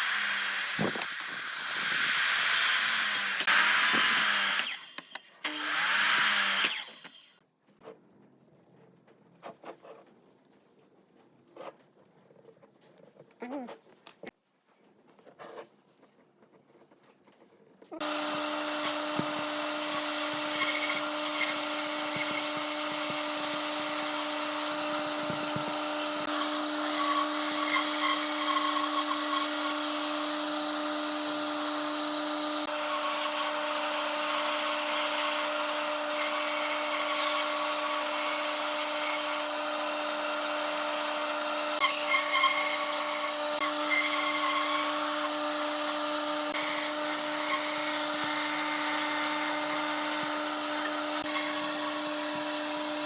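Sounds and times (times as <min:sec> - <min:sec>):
electric power tool working wood: 0:00.0 - 0:07.4, 0:18.0 - 0:53.0.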